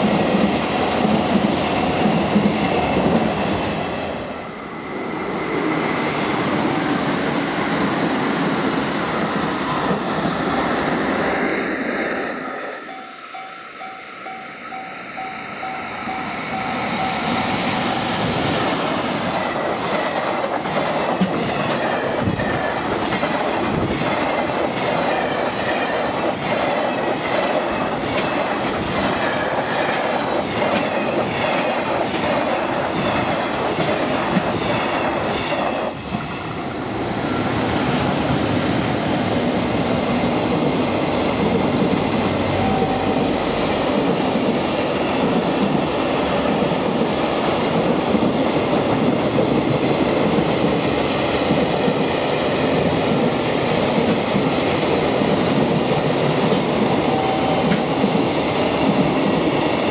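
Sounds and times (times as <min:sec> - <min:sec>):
train wheels clickety-clack: 0:00.0 - 0:04.0, 0:16.4 - 0:36.6, 0:37.4 - 0:59.9.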